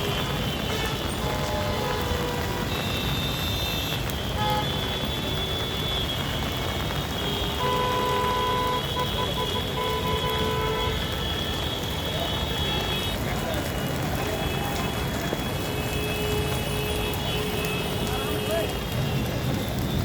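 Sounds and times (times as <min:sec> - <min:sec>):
traffic rumble: 0:00.0 - 0:20.0
car horns honking: 0:07.4 - 0:13.2.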